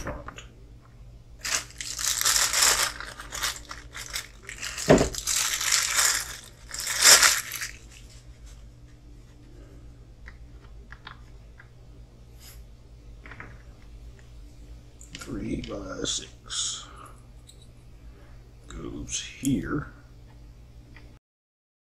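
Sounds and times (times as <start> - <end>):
plastic bag rustling and crinkling: 1.4 - 8.6.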